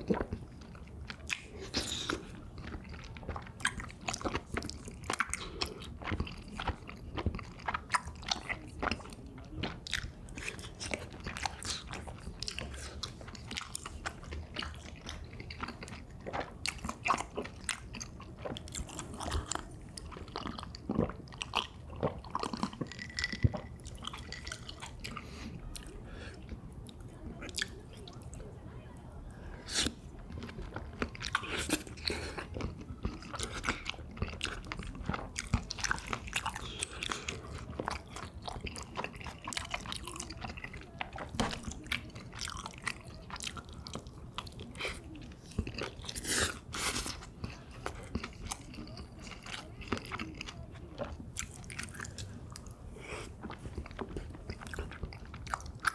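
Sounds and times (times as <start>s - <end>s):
close chewing and crunching: 0.0s - 28.6s, 29.4s - 55.9s.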